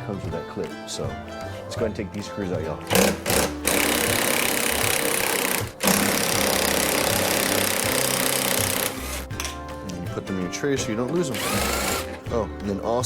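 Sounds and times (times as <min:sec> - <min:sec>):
power tool spinning a socket: 0:02.9 - 0:09.3, 0:11.3 - 0:12.2.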